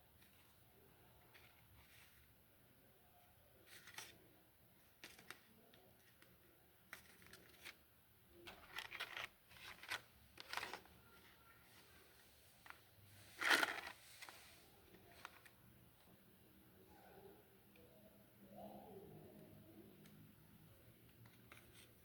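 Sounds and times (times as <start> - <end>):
packaging rustling: 8.5 - 11.2, 12.6 - 15.5.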